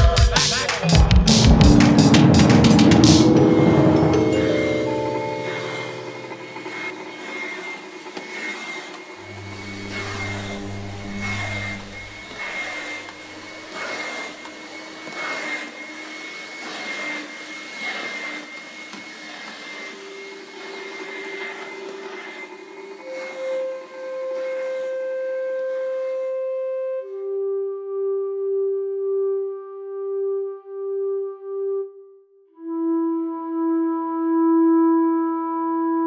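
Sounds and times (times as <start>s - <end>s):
held high tone: 0.9s - 7.0s, 9.0s - 14.5s, 20.1s - 32.2s
rushing noise drone: 1.1s - 7.0s, 9.2s - 13.8s
low hum: 9.1s - 13.9s.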